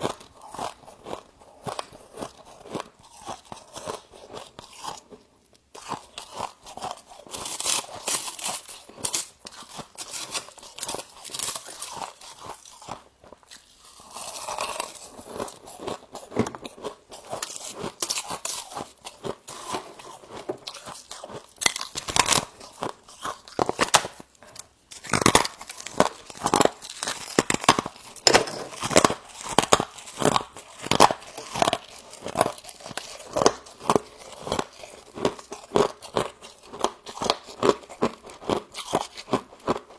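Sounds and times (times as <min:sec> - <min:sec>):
frost crunching while chewed: 0:00.0 - 0:39.9.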